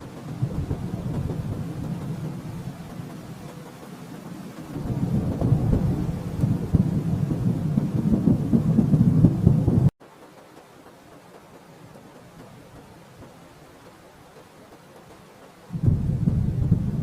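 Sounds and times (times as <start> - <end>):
thunder rumbling: 0.0 - 9.9, 15.0 - 17.0
faint steady hiss: 0.0 - 17.0.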